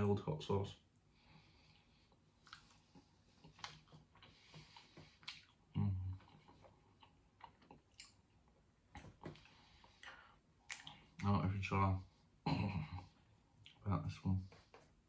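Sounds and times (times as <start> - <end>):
low closed-mouth hum: 0.0 - 15.0
person chewing: 1.8 - 11.2
wet mouth clicks: 3.4 - 5.6, 6.2 - 8.2, 9.0 - 11.2.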